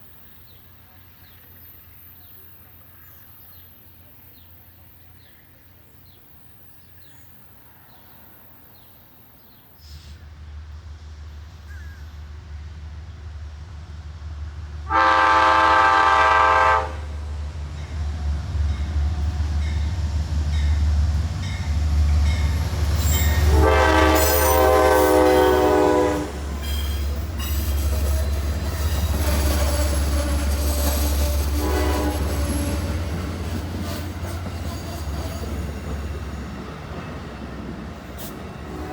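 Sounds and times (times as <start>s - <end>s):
locomotive rumble: 10.2s - 38.9s
train horn blast: 14.8s - 17.4s, 23.1s - 27.5s, 31.4s - 33.0s, 38.2s - 38.9s.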